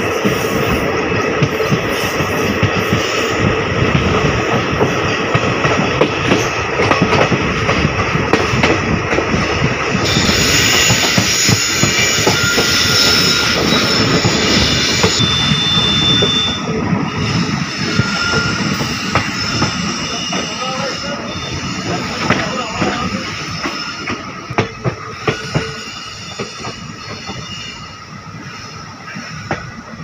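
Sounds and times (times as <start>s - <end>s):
train rumbling and rattling: 0.0s - 30.0s
high wheel squeal: 10.0s - 24.4s, 25.0s - 29.6s.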